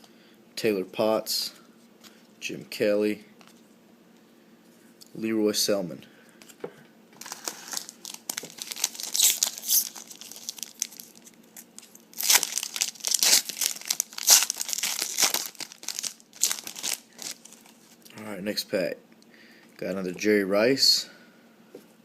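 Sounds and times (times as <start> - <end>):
wrapper tearing and crinkling: 7.2 - 18.0.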